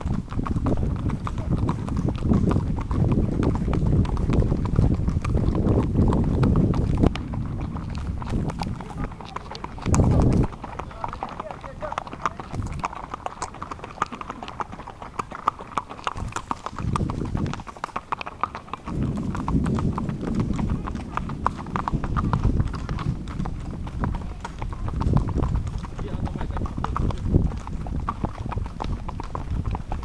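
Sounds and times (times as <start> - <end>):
horse hooves clip-clopping: 0.0 - 30.0
low rumble: 18.9 - 25.9.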